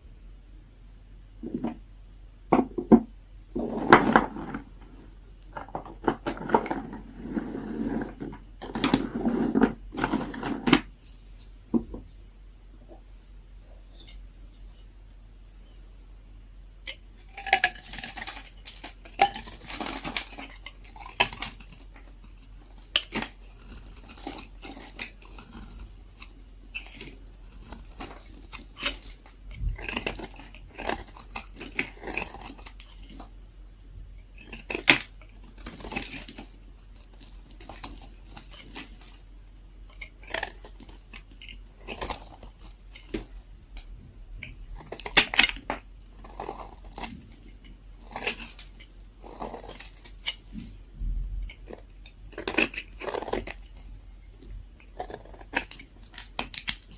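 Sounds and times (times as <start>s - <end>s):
knife scraping dry soap: 3.6s - 4.7s, 6.1s - 10.6s, 16.9s - 33.4s, 34.2s - 39.2s, 39.8s - 43.4s, 44.4s - 50.8s, 51.4s - 56.9s.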